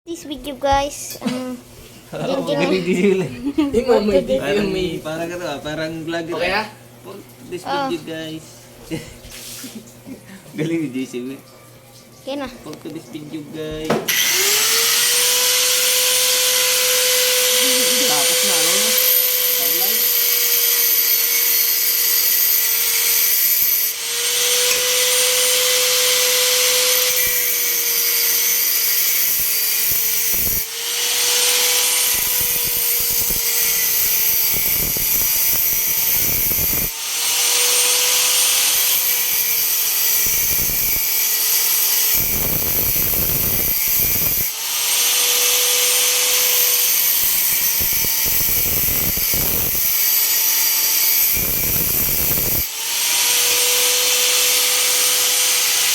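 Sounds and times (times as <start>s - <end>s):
electric arc welding hiss: 14.1s - 55.9s.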